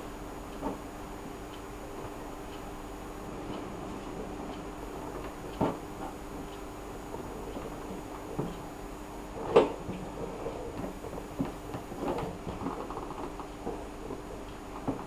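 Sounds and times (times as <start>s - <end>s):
faint steady hum: 0.0s - 3.3s, 4.8s - 9.4s, 10.8s - 12.4s.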